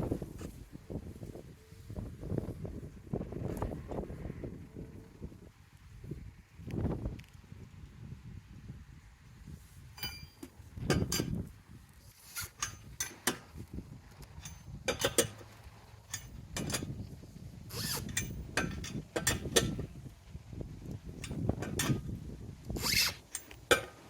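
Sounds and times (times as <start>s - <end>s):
hand tools clicking and ratcheting: 10.0s - 11.4s, 12.2s - 17.0s, 17.7s - 19.9s, 21.2s - 24.0s.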